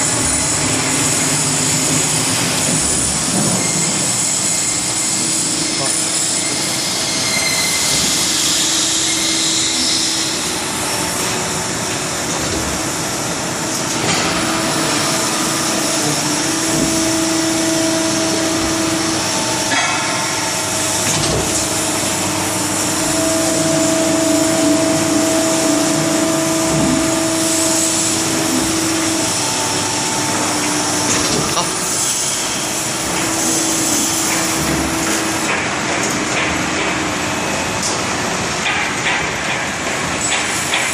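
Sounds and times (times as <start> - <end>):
machinery hum: 0.0 - 40.9
machinery hiss: 12.8 - 35.6.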